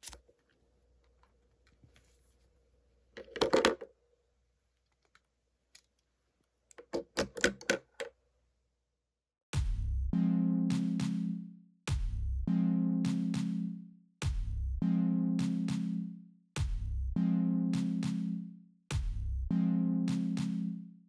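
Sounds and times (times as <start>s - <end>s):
music: 9.6s - 21.0s.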